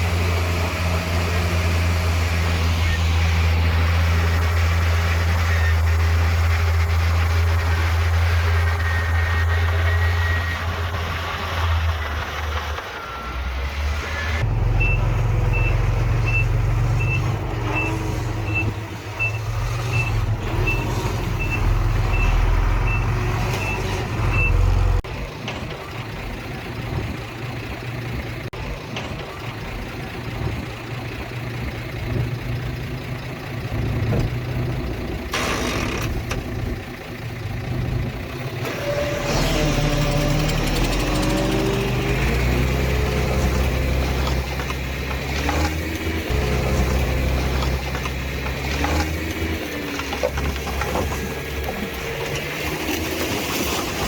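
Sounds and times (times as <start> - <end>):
diesel engine running: 0.0 - 54.0
reversing alarm beeps: 12.8 - 24.7.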